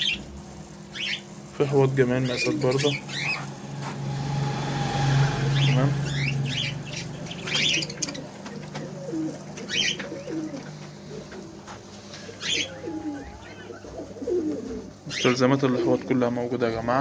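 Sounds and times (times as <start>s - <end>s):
cage birds chirping: 0.0s - 17.0s
pigeons cooing: 5.6s - 16.4s.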